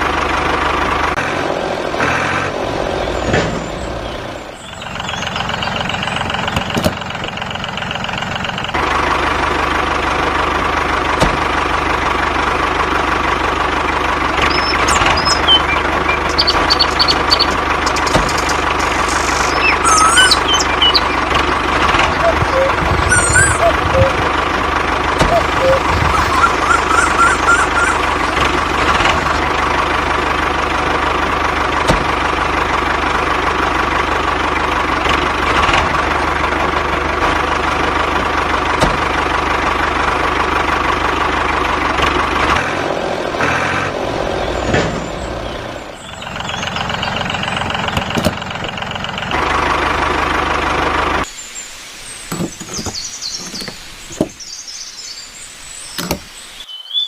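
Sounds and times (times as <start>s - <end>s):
mini tractor motor whining: 14.1s - 30.8s.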